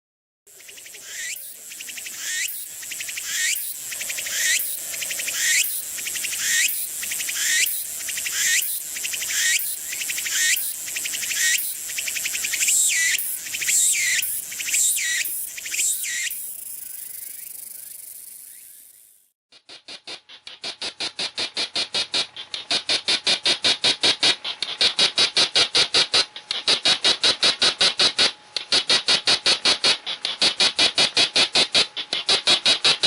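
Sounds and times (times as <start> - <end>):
cicada singing: 0.5 - 19.3.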